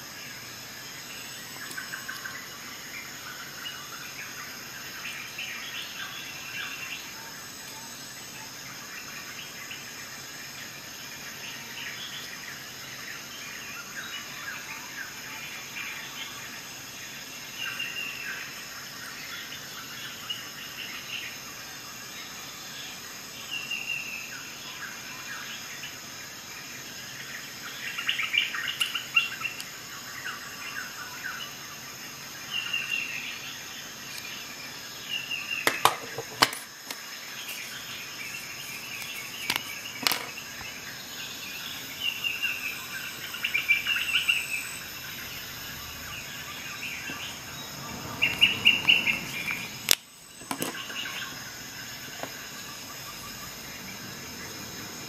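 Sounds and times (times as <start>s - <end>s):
birds chirping: 0.0s - 55.0s
high-pitched whine: 23.8s - 55.0s.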